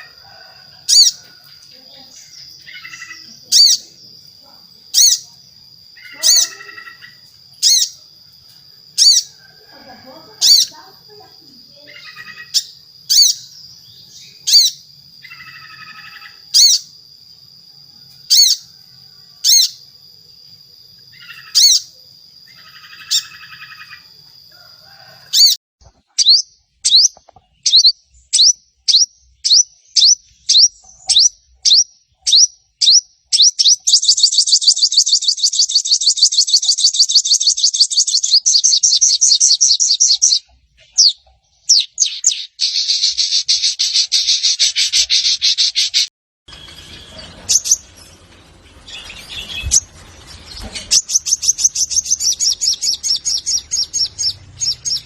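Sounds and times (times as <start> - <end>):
sunbird calls: 0.0 - 55.0
fast chattering bird trill: 2.0 - 4.0, 6.0 - 8.0, 10.3 - 13.6, 22.6 - 24.0, 26.2 - 46.1, 47.1 - 48.0, 48.9 - 55.0.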